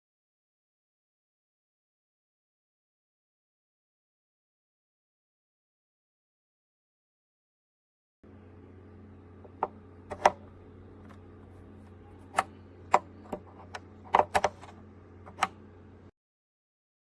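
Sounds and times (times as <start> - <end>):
mini fridge humming: 8.2 - 16.1
sharp clicks and knocks: 9.5 - 11.2, 12.2 - 15.6.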